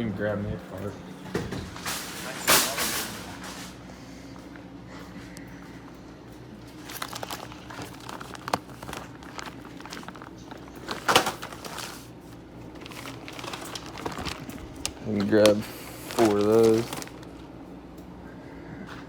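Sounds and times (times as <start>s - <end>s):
steady low hum: 0.0s - 19.0s
wrappers crinkling: 6.5s - 17.5s.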